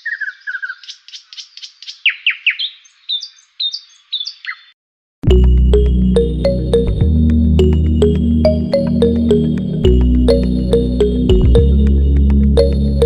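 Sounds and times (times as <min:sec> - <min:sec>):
songbird chirping: 0:00.0 - 0:04.8
music with strong bass: 0:05.2 - 0:13.0.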